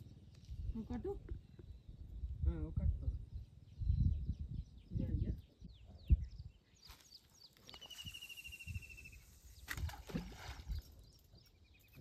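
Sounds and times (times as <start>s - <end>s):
bird chirps: 3.2s - 12.0s.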